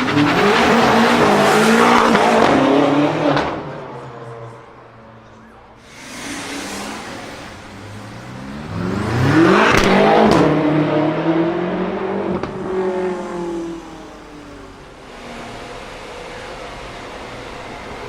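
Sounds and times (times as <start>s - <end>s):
exhaust cracks: 5.8s - 10.7s
car engine accelerating past: 5.9s - 14.8s.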